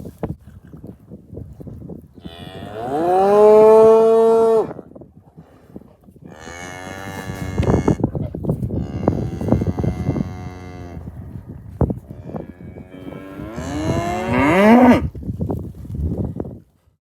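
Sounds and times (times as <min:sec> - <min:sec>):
cows mooing: 0:02.2 - 0:04.8, 0:06.3 - 0:08.1, 0:08.7 - 0:11.1, 0:12.1 - 0:15.1
hooves crunching in snow: 0:07.0 - 0:17.0.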